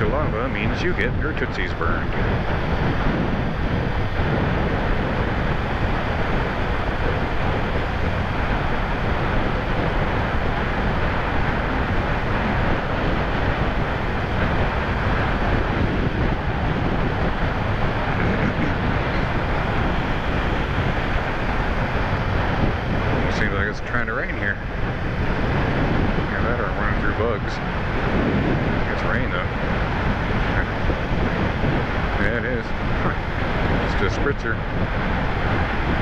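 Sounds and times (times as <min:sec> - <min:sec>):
road noise: 0:00.0 - 0:36.0
wind rushing on microphone: 0:00.0 - 0:36.0
motorcycle engine: 0:02.1 - 0:25.0.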